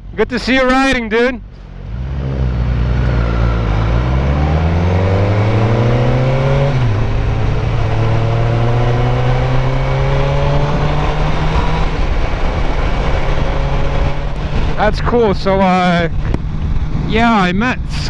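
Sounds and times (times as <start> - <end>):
motorcycle engine accelerating: 0.0 - 18.0
wind and road noise: 0.0 - 18.0.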